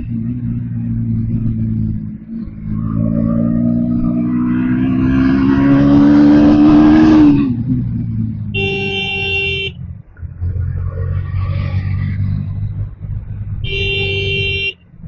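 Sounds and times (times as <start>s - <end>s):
motorcycle engine accelerating: 0.0s - 15.0s
vehicle horn: 8.5s - 9.8s, 13.6s - 14.9s.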